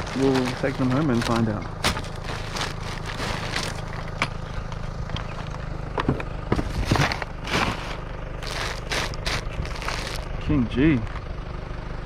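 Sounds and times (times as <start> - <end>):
knocks and rustles of rubbish: 0.0 - 4.8, 6.0 - 10.3
steady low hum: 0.0 - 12.0.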